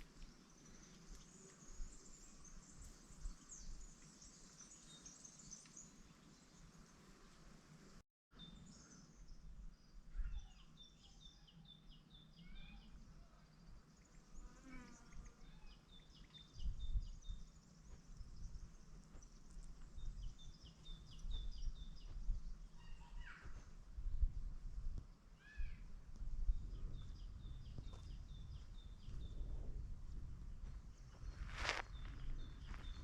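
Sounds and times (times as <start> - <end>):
songbirds singing: 0.0 - 7.1, 8.3 - 23.8, 25.1 - 29.5, 30.8 - 33.0.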